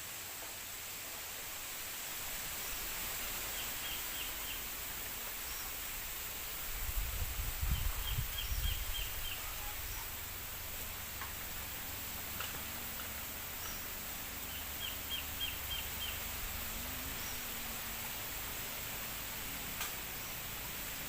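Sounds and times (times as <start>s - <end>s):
wind rustling bamboo leaves: 0.0s - 21.0s
wind buffeting microphone: 6.7s - 9.5s
small bird chirping: 13.5s - 16.3s.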